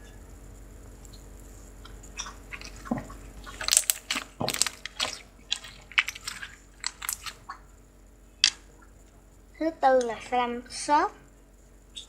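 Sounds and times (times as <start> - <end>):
slime squeezed with wet pops: 2.1 - 7.6.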